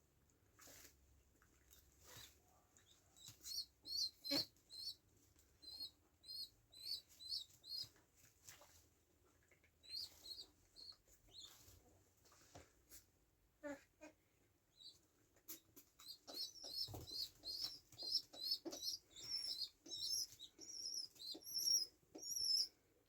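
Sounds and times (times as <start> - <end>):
bird chirping: 2.8 - 7.9, 9.8 - 11.6, 14.7 - 22.8.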